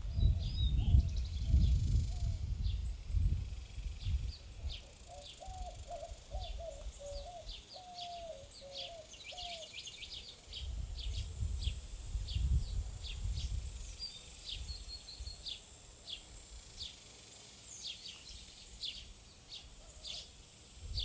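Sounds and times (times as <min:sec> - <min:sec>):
wind noise on microphone: 0:00.0 - 0:07.4, 0:10.5 - 0:15.5, 0:20.8 - 0:21.0
small birds chirping: 0:00.0 - 0:21.0
lower bird call notes: 0:04.6 - 0:11.3.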